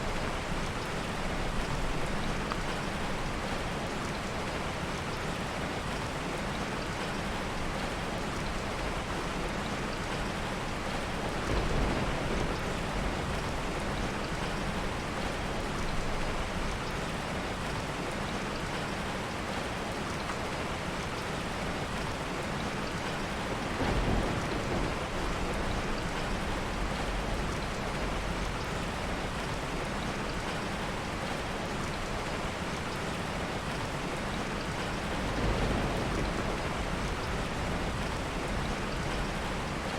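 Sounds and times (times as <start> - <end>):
heavy rain: 0.0 - 39.9
low thunder rumbling: 10.6 - 16.8, 23.3 - 29.4, 34.8 - 39.9.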